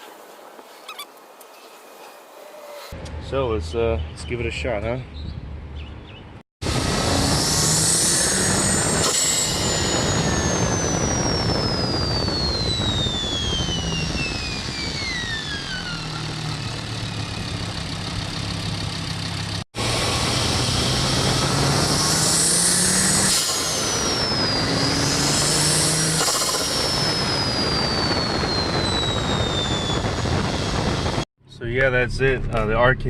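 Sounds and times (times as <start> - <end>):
high turbo whistle: 6.6 - 17.7, 19.8 - 31.3
turbocharged engine running: 6.6 - 31.3.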